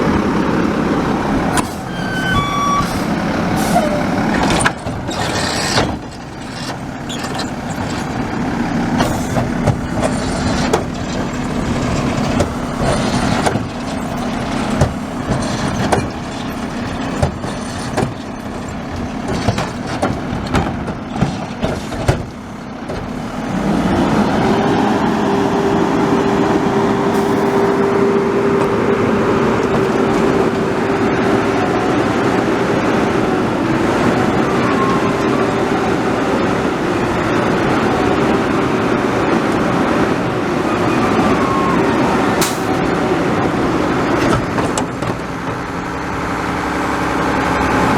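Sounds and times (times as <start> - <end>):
truck clanks and knocks: 0.0 - 25.1, 26.6 - 47.9
garbage truck engine running: 0.0 - 47.9.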